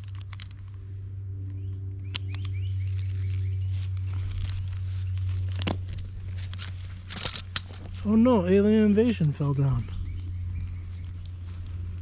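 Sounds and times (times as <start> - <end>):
light clicks and rustles: 0.0 - 12.0
steady low hum: 0.0 - 12.0
bird chirps: 1.5 - 4.0, 9.3 - 11.8.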